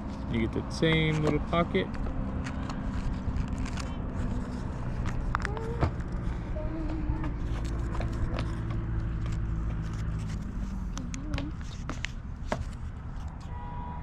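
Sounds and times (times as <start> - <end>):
steady low hum: 0.0 - 13.4
paper rustling and creasing: 1.1 - 6.3, 7.4 - 13.4.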